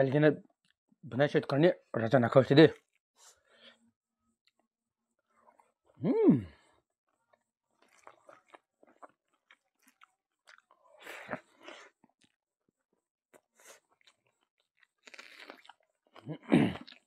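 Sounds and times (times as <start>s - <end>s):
person chewing food: 7.1s - 12.4s, 13.3s - 17.0s.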